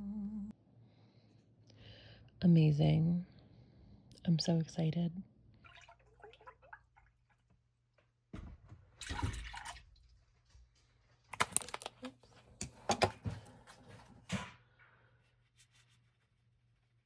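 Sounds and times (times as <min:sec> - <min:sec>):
water splash: 0:05.6 - 0:07.4, 0:09.0 - 0:10.1.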